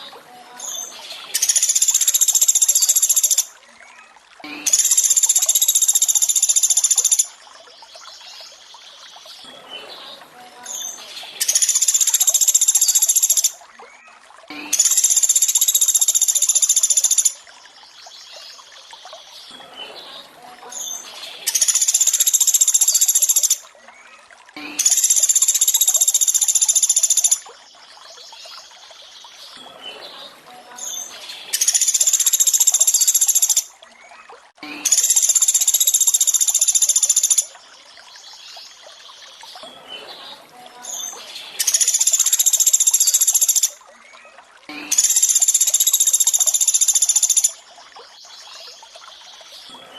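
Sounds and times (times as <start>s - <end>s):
trickling water: 0.0s - 49.9s
woodpecker calls: 44.9s - 47.6s.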